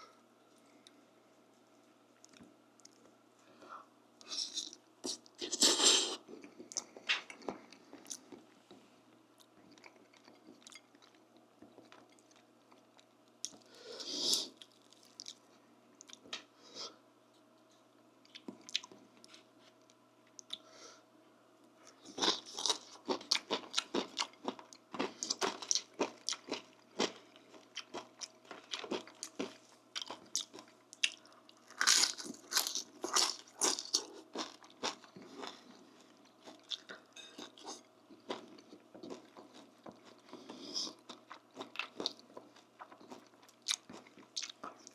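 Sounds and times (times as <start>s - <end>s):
person chewing crunchy food: 9.4s - 13.7s, 18.3s - 19.4s, 21.8s - 44.9s.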